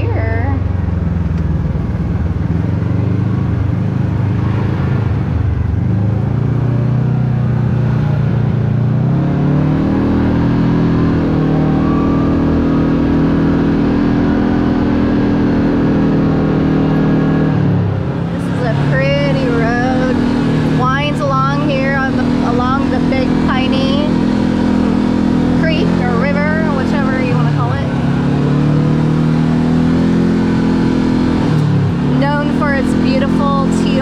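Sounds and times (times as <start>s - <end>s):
utility vehicle engine running: 0.0s - 34.0s.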